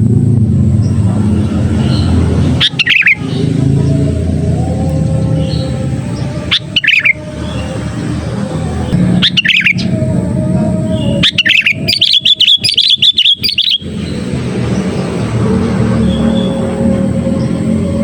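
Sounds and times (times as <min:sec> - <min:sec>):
low rumble: 0:00.0 - 0:12.3
bulbul chirping and chattering: 0:00.6 - 0:04.2, 0:04.8 - 0:07.8, 0:08.9 - 0:10.0, 0:10.9 - 0:14.2.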